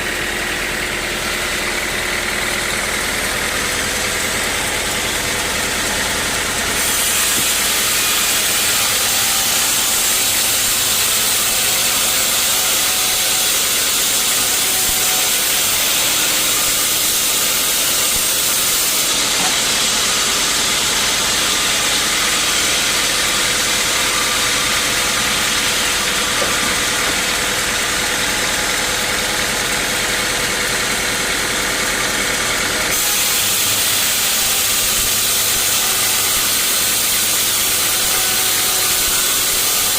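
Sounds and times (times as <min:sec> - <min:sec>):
sawmill engine hum: 0:00.0 - 0:39.9
saw blade hissing: 0:06.1 - 0:27.2, 0:32.9 - 0:39.9.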